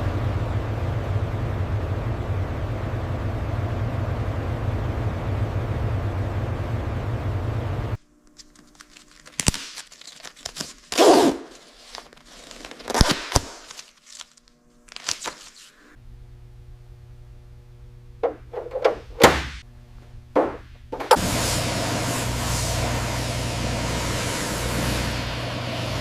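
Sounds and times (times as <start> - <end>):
low steady hum: 0.0 - 9.4, 15.9 - 26.0
thunks and clicks of parts: 18.2 - 19.6, 20.3 - 21.2.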